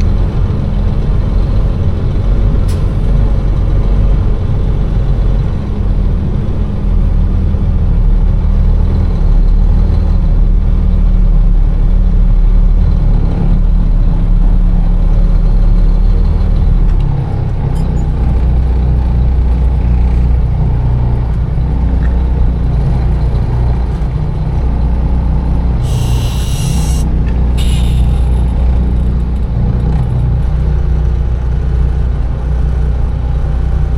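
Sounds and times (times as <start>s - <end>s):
truck diesel engine rumbling: 0.0s - 33.9s
air brake hisses: 2.7s - 3.1s, 25.8s - 28.6s.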